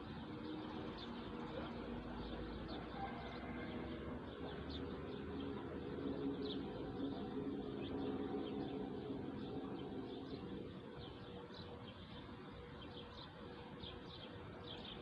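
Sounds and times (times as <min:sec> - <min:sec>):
small birds chirping: 0:00.0 - 0:03.4, 0:04.3 - 0:15.0
steady low drone: 0:05.1 - 0:12.3.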